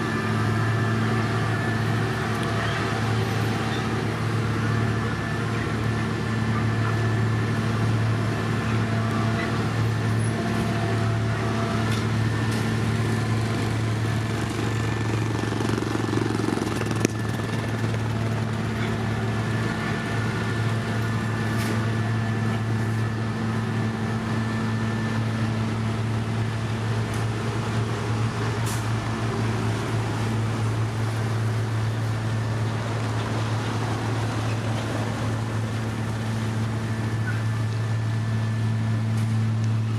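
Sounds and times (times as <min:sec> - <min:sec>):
construction machinery engine humming: 0:00.0 - 0:39.9.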